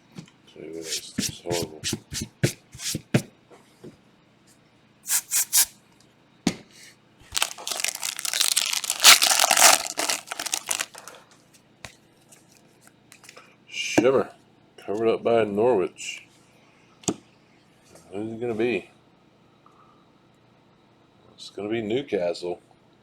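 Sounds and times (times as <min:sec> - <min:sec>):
foil wrapper crinkling and tearing: 0:07.3 - 0:11.2.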